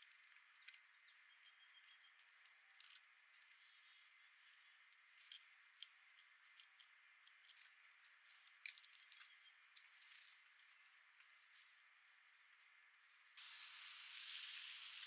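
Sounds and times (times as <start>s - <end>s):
small birds chipping: 0.0s - 15.0s
steady hiss: 13.2s - 15.0s.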